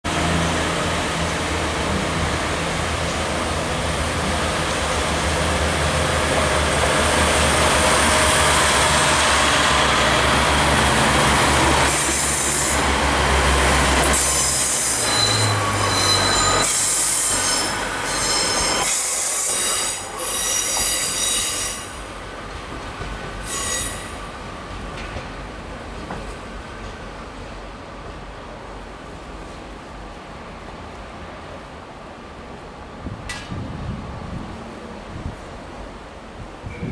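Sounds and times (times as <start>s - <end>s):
train wheels squealing: 14.0s - 22.0s, 23.4s - 24.2s.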